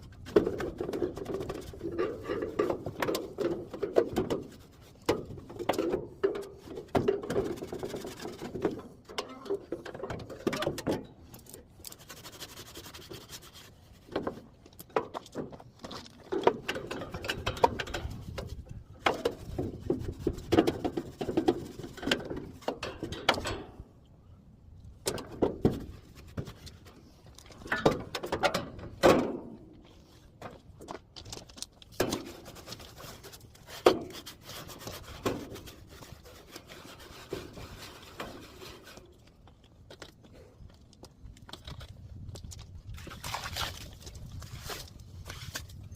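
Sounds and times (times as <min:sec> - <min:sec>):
rubbing and scrubbing: 0:00.0 - 0:05.8, 0:06.4 - 0:09.0, 0:11.8 - 0:14.4, 0:18.0 - 0:22.7, 0:25.6 - 0:27.2, 0:32.1 - 0:39.2
sharp knocks and clatter: 0:14.1 - 0:23.8.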